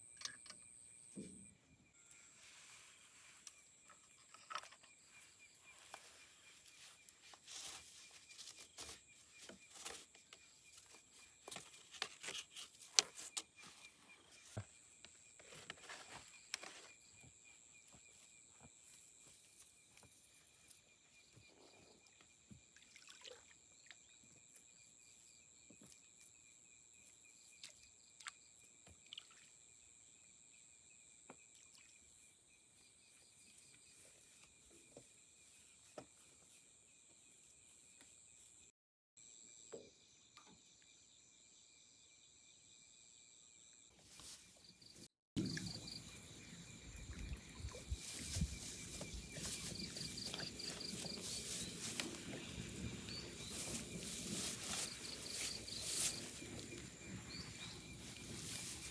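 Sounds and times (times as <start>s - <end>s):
insects droning: 45.4s - 58.9s.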